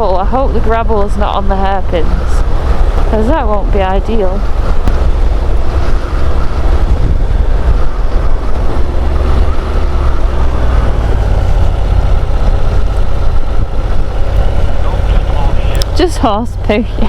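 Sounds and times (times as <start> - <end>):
faint motorcycle engine: 0.0 - 17.0
wind rush on microphone: 0.0 - 17.0.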